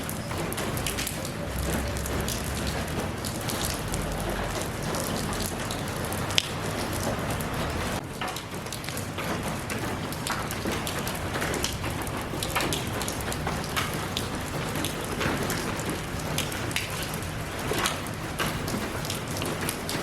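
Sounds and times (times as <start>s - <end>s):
raindrops ticking close by: 0.0s - 20.0s
steady rain falling: 0.0s - 20.0s.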